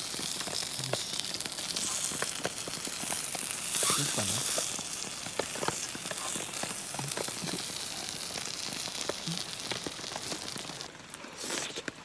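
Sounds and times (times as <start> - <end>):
food sizzling on a hot griddle: 0.0 - 11.0.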